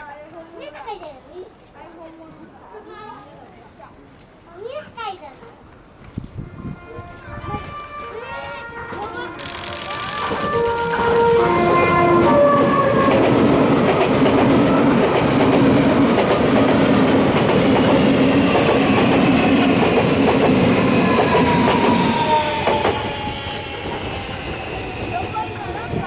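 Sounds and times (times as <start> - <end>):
train running noise: 5.6 - 26.0
train whine falling in pitch: 6.7 - 15.8, 17.0 - 26.0.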